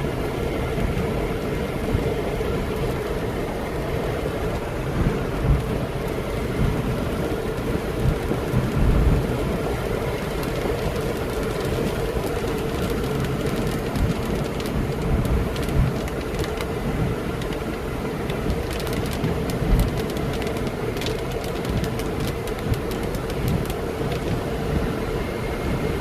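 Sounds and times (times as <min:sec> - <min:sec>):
low thunder rumble: 0:00.0 - 0:16.2
heavy rain: 0:00.0 - 0:26.0
raindrops ticking sharply: 0:04.5 - 0:24.5.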